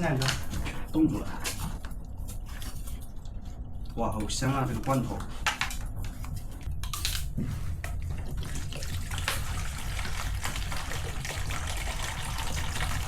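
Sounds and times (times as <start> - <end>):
water boiling: 7.8 - 13.0.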